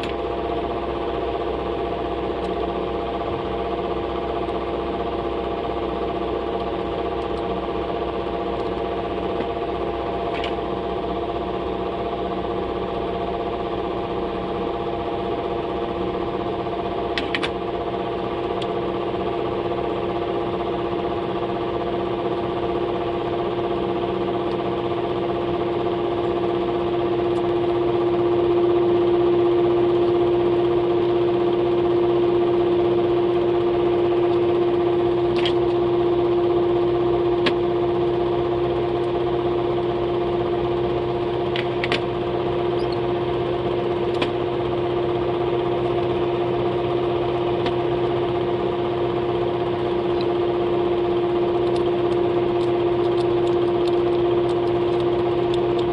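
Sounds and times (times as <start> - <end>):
small motor humming: 14.3 - 55.9.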